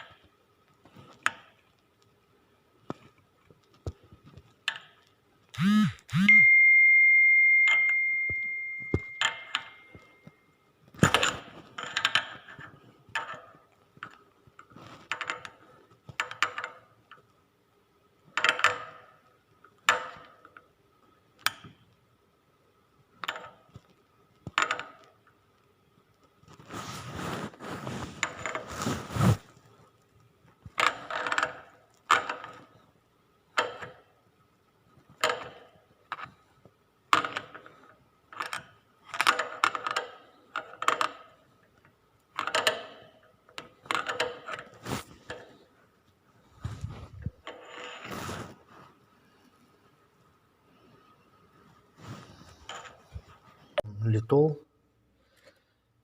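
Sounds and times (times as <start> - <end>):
rough rubbing noise: 26.6 - 29.6, 46.5 - 49.0.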